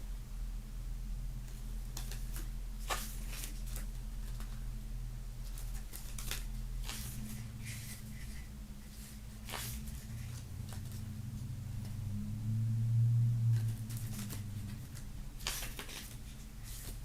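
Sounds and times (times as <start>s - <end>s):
steady low hum: 0.0s - 17.0s
paper and cardboard rustling: 1.9s - 4.6s, 5.4s - 11.1s, 13.6s - 17.0s.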